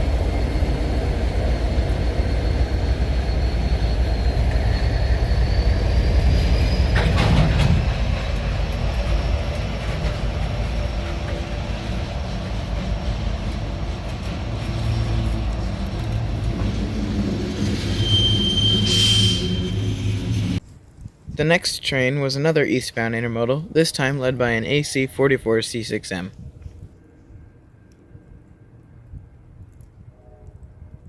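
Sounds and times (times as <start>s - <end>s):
freight train rumbling past: 0.0s - 20.6s
high wheel squeal: 0.0s - 20.6s.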